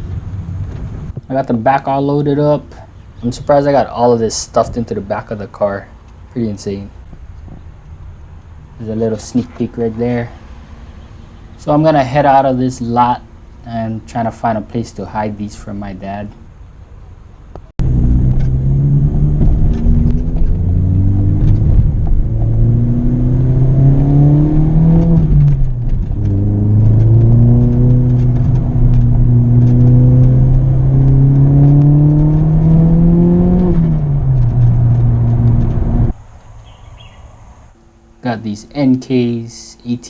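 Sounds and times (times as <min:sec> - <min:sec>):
car engine accelerating: 0:08.7 - 0:16.5, 0:17.8 - 0:36.8.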